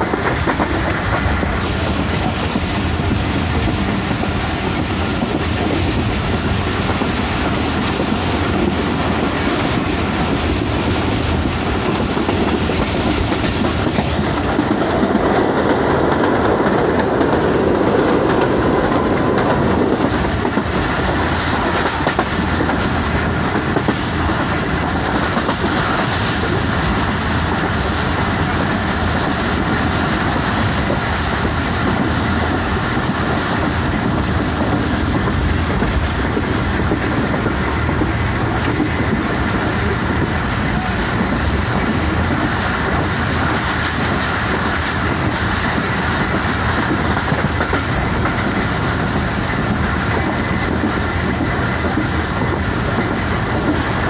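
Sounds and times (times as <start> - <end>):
train rumble: 0.0 - 54.0
wheels clacking over rail joints: 0.0 - 54.0.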